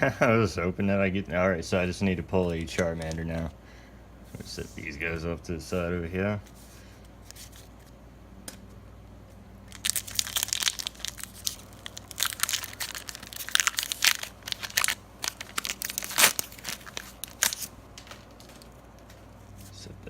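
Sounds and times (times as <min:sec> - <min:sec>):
foil wrapper crinkling and tearing: 0:09.7 - 0:18.8.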